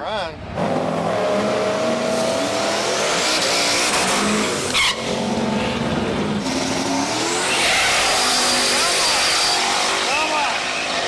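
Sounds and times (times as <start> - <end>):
drag racing car engine: 0.1 - 11.0
tyre squeal: 3.3 - 5.3, 6.4 - 11.0.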